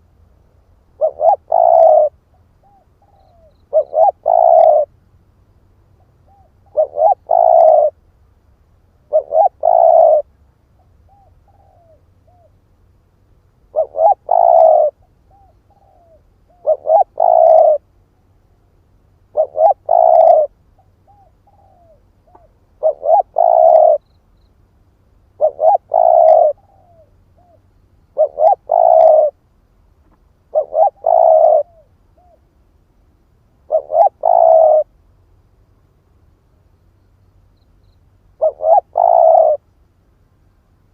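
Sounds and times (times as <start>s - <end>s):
dove cooing: 1.0s - 4.9s, 6.0s - 8.0s, 9.0s - 12.6s, 13.7s - 17.9s, 19.3s - 24.1s, 25.4s - 29.4s, 30.5s - 32.5s, 33.6s - 35.0s, 38.4s - 39.7s
fainter dove coos: 1.0s - 4.9s, 6.0s - 8.0s, 9.1s - 12.5s, 13.7s - 17.9s, 19.3s - 24.0s, 25.4s - 27.6s, 28.2s - 29.4s, 30.5s - 32.5s, 33.6s - 34.9s, 38.4s - 39.6s.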